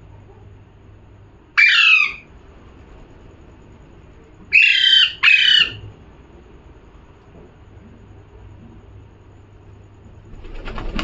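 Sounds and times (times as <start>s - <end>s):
parrot squawking: 1.6s - 2.3s, 4.5s - 5.8s.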